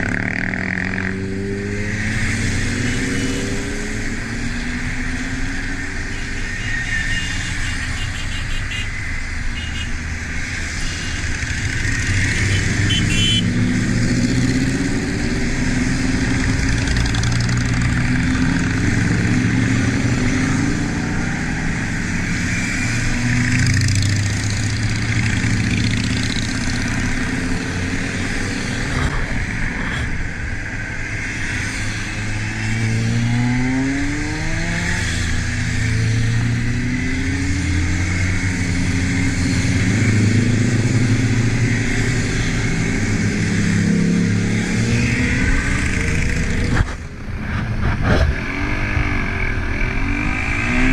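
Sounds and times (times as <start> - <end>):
wind and road noise: 0.0 - 50.9
motorcycle engine revving: 10.5 - 50.9.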